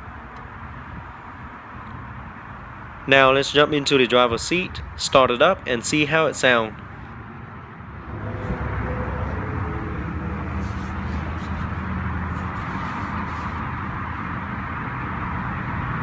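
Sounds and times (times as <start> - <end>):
car engine rumbling: 6.7 - 16.0.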